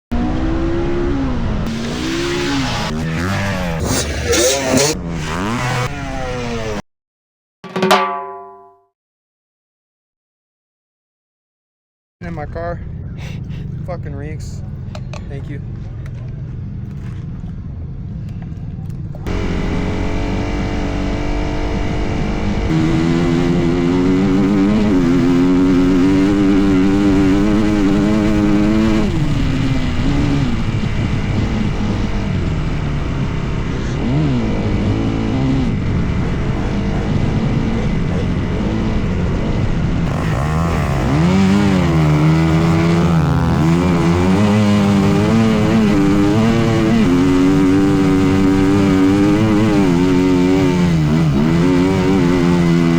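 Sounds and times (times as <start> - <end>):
dirt bike engine revving: 0.1 - 6.8, 19.3 - 52.9.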